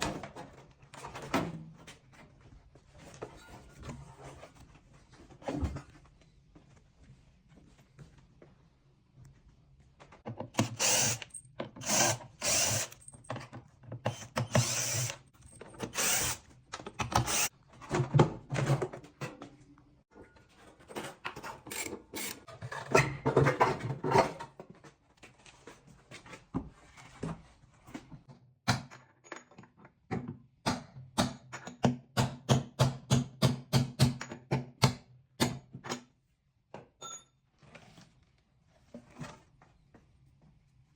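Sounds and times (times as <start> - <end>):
power tool bursts: 10.6 - 13.0, 14.1 - 15.2, 15.9 - 16.4, 17.2 - 17.5.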